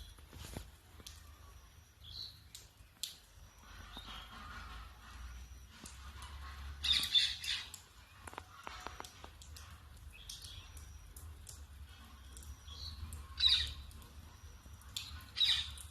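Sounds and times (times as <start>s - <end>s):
low steady hum: 0.0s - 15.9s.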